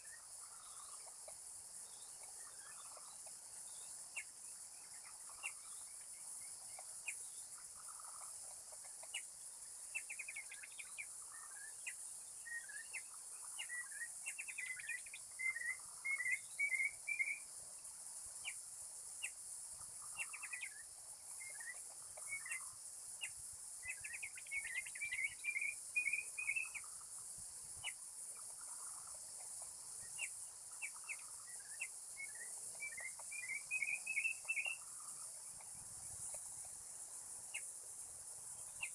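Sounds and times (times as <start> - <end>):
insects hissing: 0.0 - 38.9
bird whistling song: 10.0 - 17.5, 20.2 - 26.9, 30.1 - 34.9.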